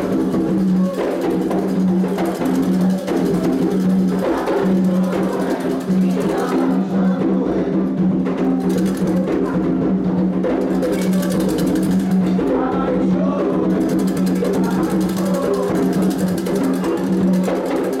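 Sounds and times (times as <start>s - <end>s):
hand drums and percussion: 0.0s - 18.0s
voices singing a chant: 0.0s - 18.0s.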